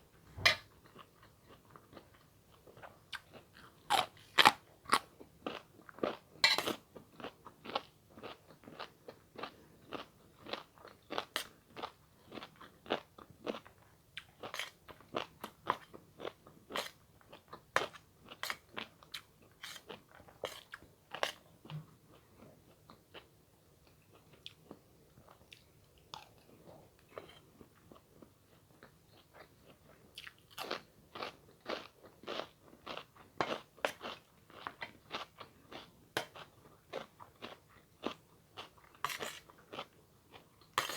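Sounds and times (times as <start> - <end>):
crunchy bites and chewing: 3.2 - 5.6.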